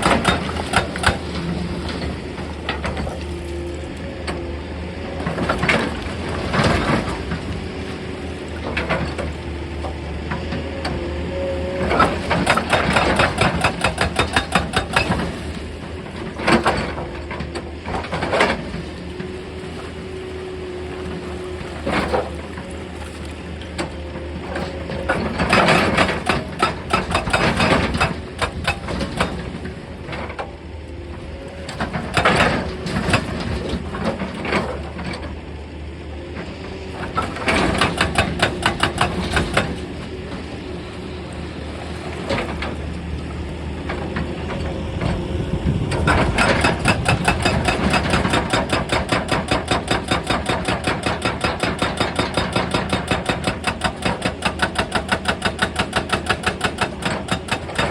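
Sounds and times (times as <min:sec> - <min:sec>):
hydraulic breaker hammering rock: 0:00.0 - 0:02.0, 0:11.8 - 0:15.6, 0:24.5 - 0:29.7, 0:31.7 - 0:34.8, 0:37.0 - 0:40.0, 0:45.8 - 0:57.9.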